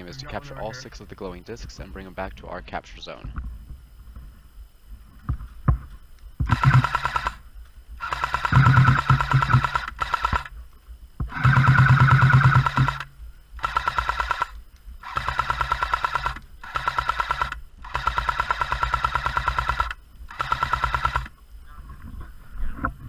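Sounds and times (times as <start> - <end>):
motor and gearbox whine: 5.8 - 10.6, 11.2 - 21.4
airsoft machine gun firing bursts: 6.4 - 7.4, 8.0 - 10.5, 11.3 - 21.3.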